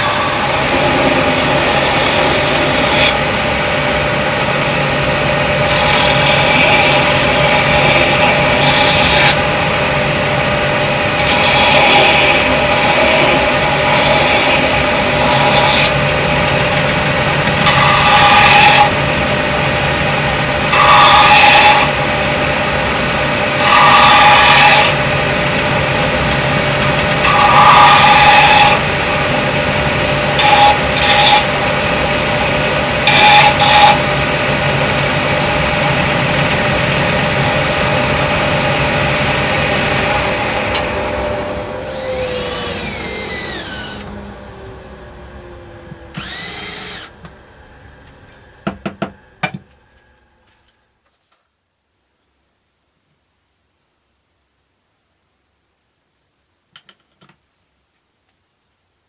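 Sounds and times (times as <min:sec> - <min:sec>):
power tool motor running: 0:00.0 - 0:16.9, 0:23.6 - 0:44.2, 0:46.1 - 0:47.3.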